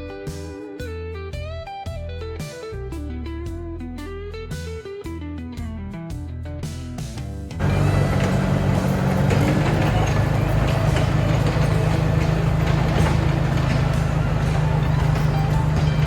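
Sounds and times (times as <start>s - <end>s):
heavy equipment engine drone: 7.6s - 16.0s.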